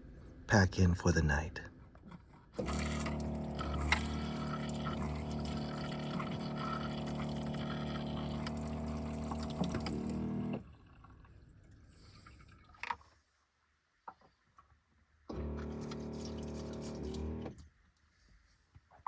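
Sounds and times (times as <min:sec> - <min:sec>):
machine hum with low buzz: 0:02.6 - 0:10.6, 0:15.3 - 0:17.6.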